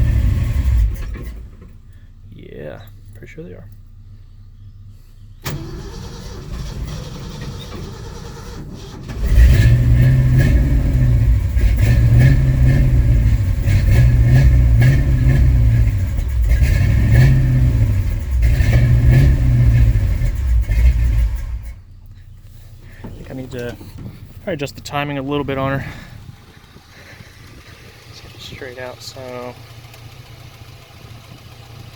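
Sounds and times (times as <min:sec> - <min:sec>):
engine surging: 0:00.0 - 0:03.8, 0:05.4 - 0:31.9.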